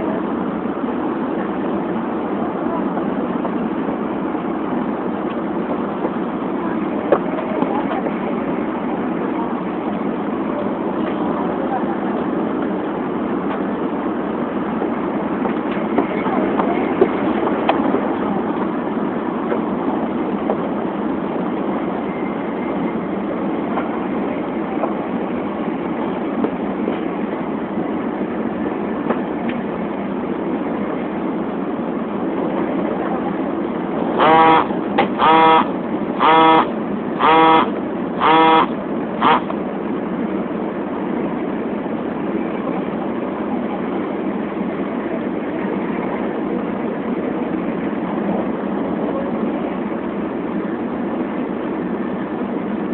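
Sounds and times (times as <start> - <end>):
train rushing at speed: 0.0 - 52.9.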